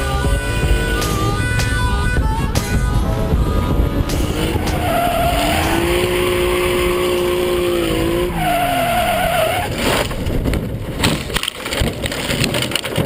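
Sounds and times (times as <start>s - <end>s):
tyres squealing: 0.0s - 10.2s
car engine at high revs: 0.0s - 11.5s.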